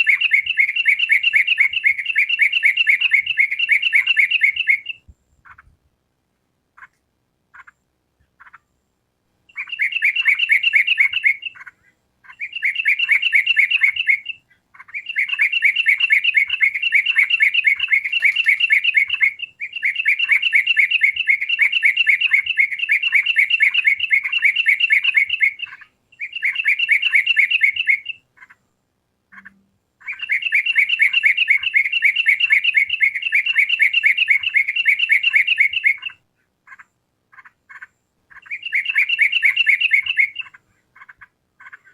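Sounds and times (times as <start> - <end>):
bird singing rapid chirps: 0.0 - 5.8, 9.4 - 28.6, 29.3 - 41.9.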